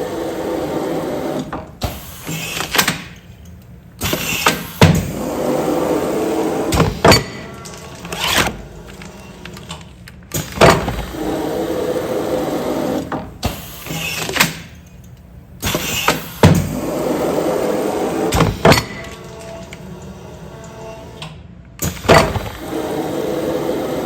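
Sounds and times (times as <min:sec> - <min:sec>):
sealing machine motor running: 0:04.1 - 0:13.1
sealing machine clunks: 0:06.7 - 0:11.2, 0:21.8 - 0:22.7.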